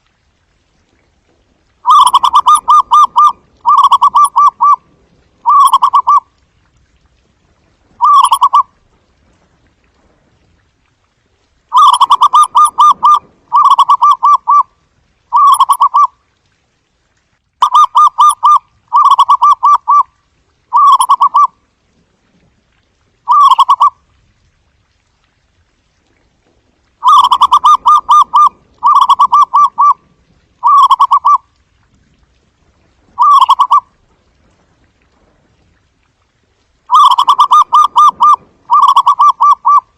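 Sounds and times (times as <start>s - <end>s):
dove cooing: 1.8s - 4.8s, 5.4s - 6.2s, 8.0s - 8.7s, 11.7s - 14.7s, 15.3s - 16.1s, 17.6s - 20.0s, 20.7s - 21.5s, 23.3s - 23.9s, 27.0s - 30.0s, 30.6s - 31.4s, 33.2s - 33.8s, 36.9s - 39.9s.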